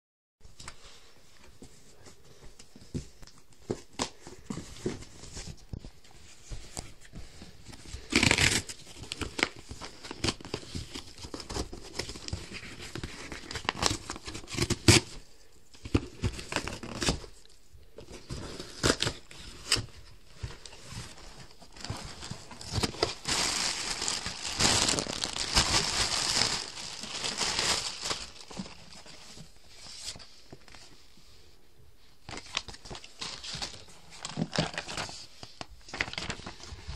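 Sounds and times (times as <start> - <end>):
packaging crinkling and tearing: 7.9 - 15.2, 15.9 - 17.5, 18.2 - 30.7, 32.3 - 36.9.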